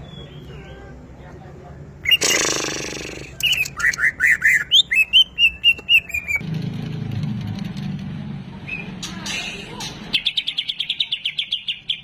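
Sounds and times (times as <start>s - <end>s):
bird chirping: 0.0s - 1.0s, 2.0s - 6.4s, 8.6s - 12.0s.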